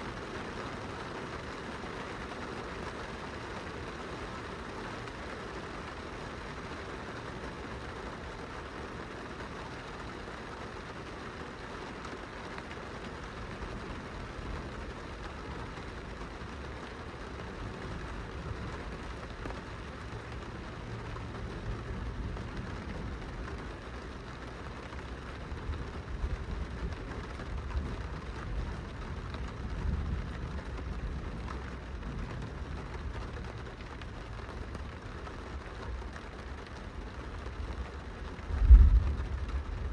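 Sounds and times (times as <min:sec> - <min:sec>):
rain on window glass: 0:00.0 - 0:39.9
low rumble: 0:38.4 - 0:39.9.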